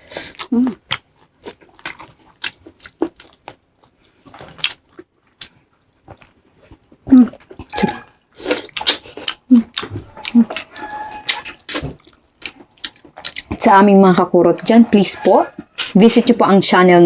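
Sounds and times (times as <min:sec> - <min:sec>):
wet chewing and lip smacking: 0:00.3 - 0:13.6.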